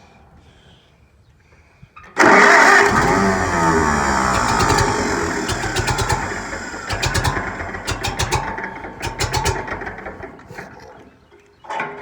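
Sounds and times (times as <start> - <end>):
tractor engine firing unevenly: 2.2 - 10.8.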